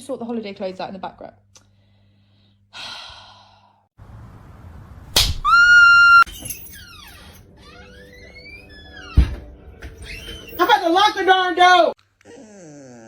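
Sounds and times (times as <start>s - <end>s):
short falling squeals: 5.4s - 9.2s.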